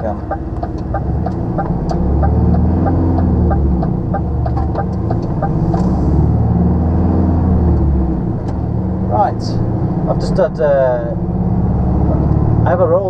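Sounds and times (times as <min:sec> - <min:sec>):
turn indicator ticking: 0:00.0 - 0:05.9
diesel engine pulling away: 0:00.0 - 0:13.0.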